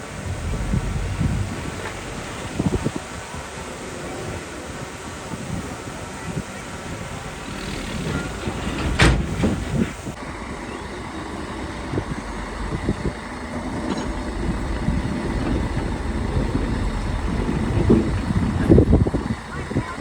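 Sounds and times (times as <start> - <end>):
earthmoving machinery rumbling: 0.0 - 4.3, 6.4 - 20.0
loud knocks: 0.1 - 3.0, 7.3 - 10.2, 11.7 - 20.0.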